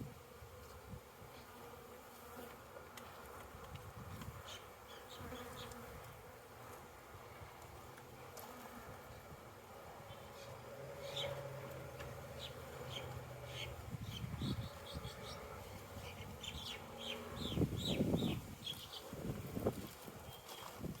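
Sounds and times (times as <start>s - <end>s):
honey bees buzzing: 0.0s - 21.0s
small bird chirping: 11.0s - 11.4s, 12.3s - 19.1s.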